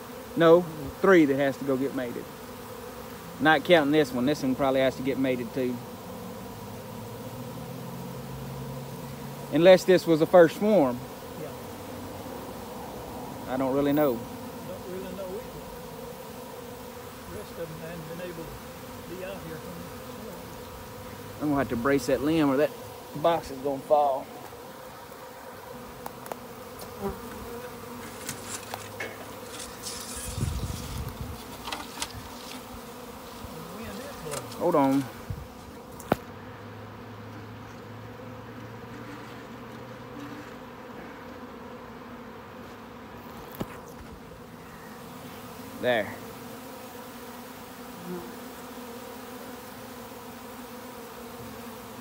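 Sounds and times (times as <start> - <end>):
bee swarm buzzing: 0.0 - 52.0
wind rumble on microphone: 30.3 - 31.4, 35.2 - 35.5.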